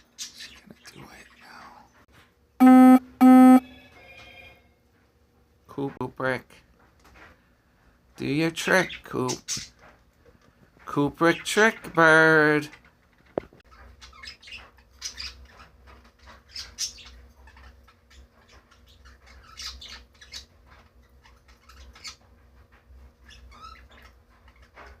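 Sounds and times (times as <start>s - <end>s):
parakeet chirping and squawking: 13.7s - 22.2s, 23.2s - 24.9s.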